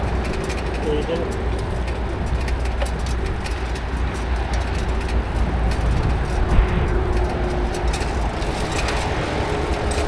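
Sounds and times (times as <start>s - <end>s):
bicycle road noise: 0.0s - 10.0s
wind rumble on microphone: 0.0s - 10.0s.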